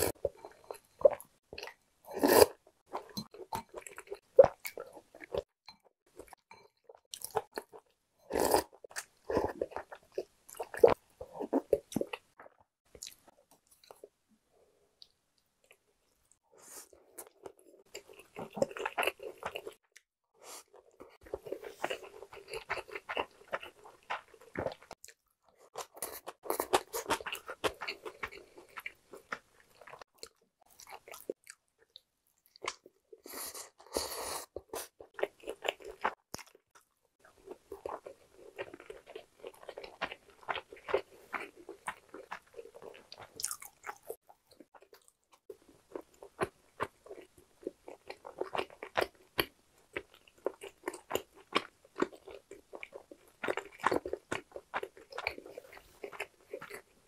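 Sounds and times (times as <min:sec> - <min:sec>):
person chewing food: 0:00.0 - 0:14.2, 0:15.0 - 0:57.0.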